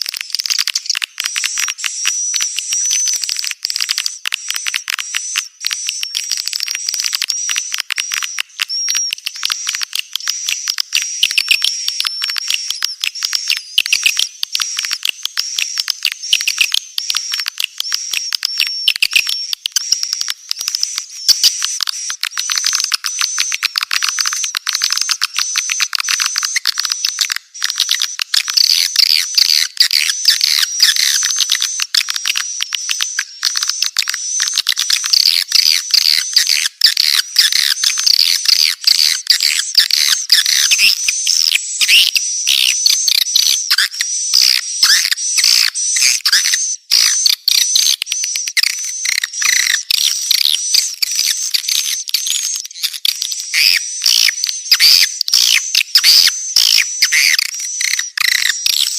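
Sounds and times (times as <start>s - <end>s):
swiftlets twittering: 28.7s - 58.9s.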